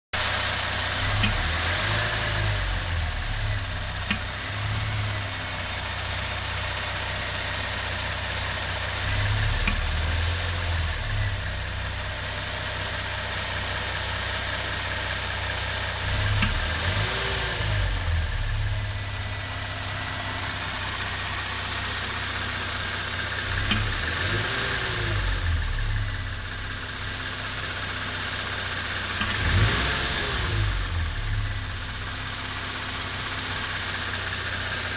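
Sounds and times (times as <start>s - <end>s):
car engine idling: 0.2s - 34.9s.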